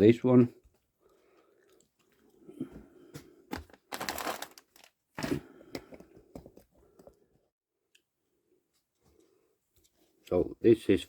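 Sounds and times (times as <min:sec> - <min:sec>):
packaging crinkling and rustling: 0:03.5 - 0:05.4.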